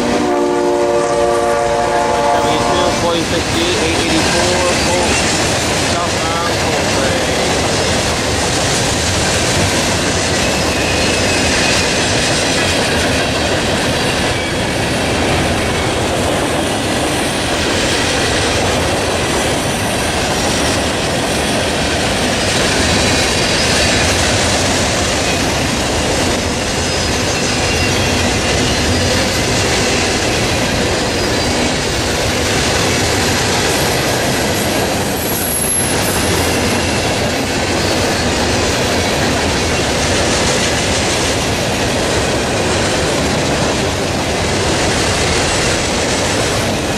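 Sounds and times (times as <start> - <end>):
train wheels clattering over rail joints: 3.1 - 46.9
high wheel squeal: 10.4 - 12.6, 22.3 - 24.4, 26.6 - 30.1, 34.6 - 38.4.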